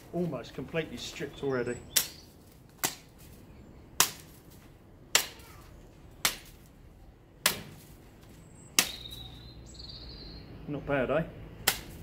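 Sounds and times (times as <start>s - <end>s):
billhook chopping branches: 1.9s - 3.3s, 4.0s - 6.8s, 7.4s - 9.3s, 11.6s - 12.0s.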